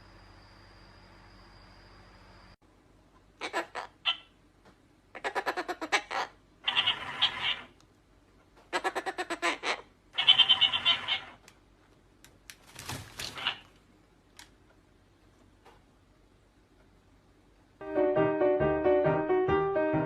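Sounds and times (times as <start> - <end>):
parrot squawking: 3.4 - 4.4, 5.1 - 7.8, 8.7 - 11.4, 13.2 - 13.8.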